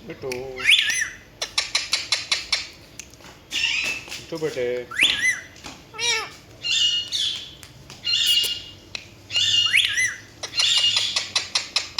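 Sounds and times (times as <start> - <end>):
parrot squawking: 0.6 - 2.7, 8.1 - 8.7, 9.3 - 11.9.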